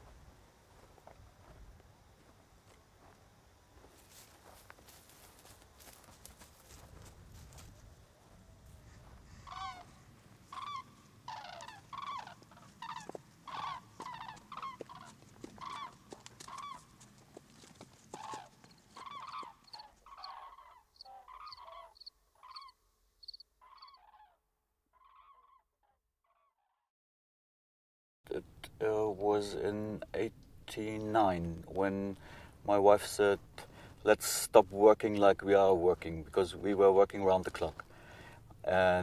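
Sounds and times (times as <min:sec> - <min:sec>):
cranes trumpeting: 0:08.8 - 0:16.8, 0:18.1 - 0:22.7.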